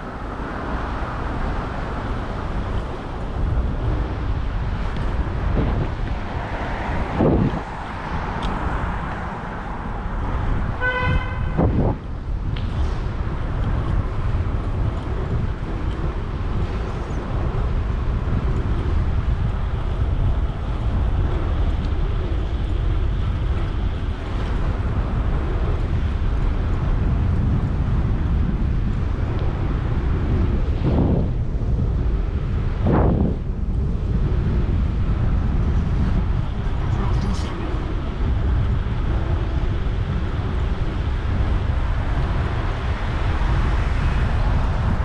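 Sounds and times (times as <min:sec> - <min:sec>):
road traffic: 0:00.0 - 0:45.0
wind on microphone: 0:00.0 - 0:45.0
vehicle horn toot: 0:10.8 - 0:11.8.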